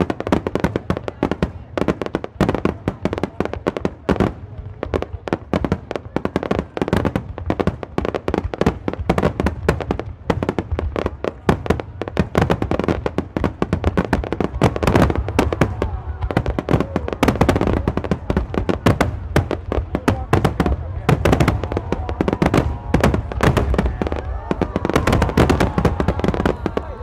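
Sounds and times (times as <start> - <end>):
fireworks bursting: 0.0 - 27.0.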